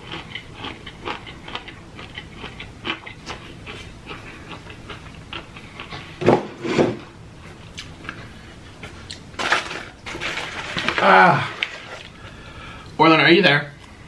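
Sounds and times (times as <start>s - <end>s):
person chewing food: 0.0s - 6.2s, 7.4s - 9.3s.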